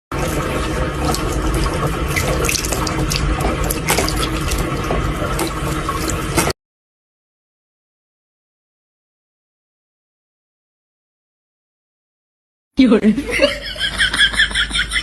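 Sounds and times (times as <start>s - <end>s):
water running and splashing: 0.1s - 6.5s.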